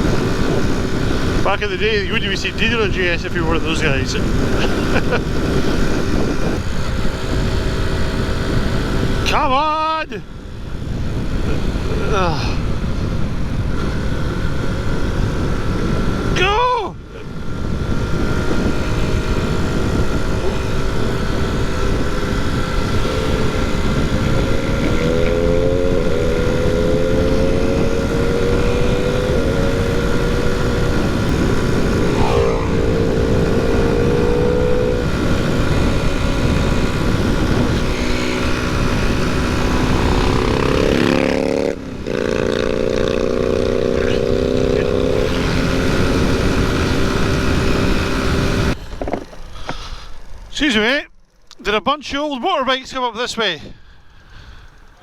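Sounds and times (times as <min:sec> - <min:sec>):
wind rush on microphone: 0:00.0 - 0:49.7
motorcycle engine running hard: 0:00.0 - 0:51.5.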